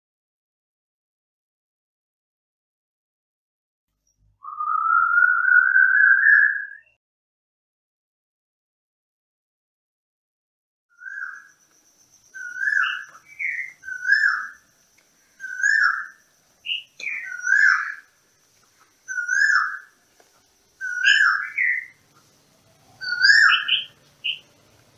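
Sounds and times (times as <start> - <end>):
bird whistling falling note: 4.4 - 7.0
faint steady high tone: 11.0 - 24.9.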